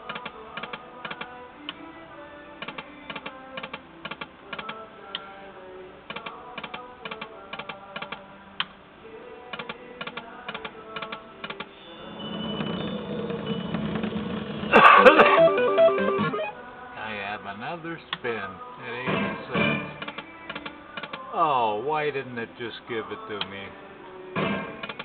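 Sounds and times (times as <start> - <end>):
electronic tones: 14.8 - 16.6
slot machine clicks: 14.8 - 16.6.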